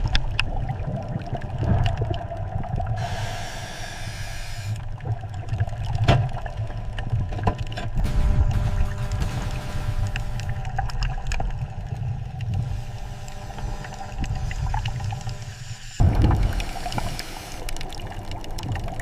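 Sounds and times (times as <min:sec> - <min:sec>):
steady low rumble: 0:00.0 - 0:19.0
water sounds: 0:00.0 - 0:19.0
hiss: 0:03.0 - 0:04.8, 0:12.6 - 0:17.8.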